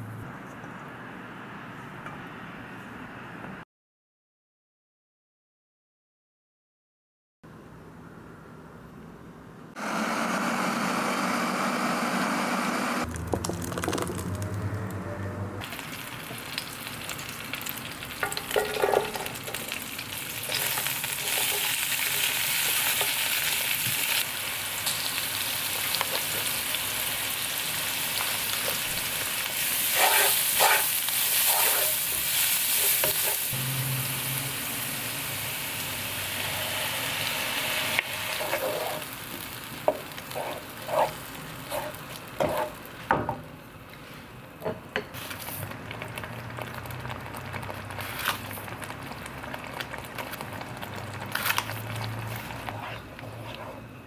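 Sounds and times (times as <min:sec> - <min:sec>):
food sizzling in oil: 0:15.6 - 0:43.0
utensil scraping a pan: 0:29.8 - 0:33.5, 0:38.3 - 0:39.1, 0:39.9 - 0:42.8, 0:52.1 - 0:53.9.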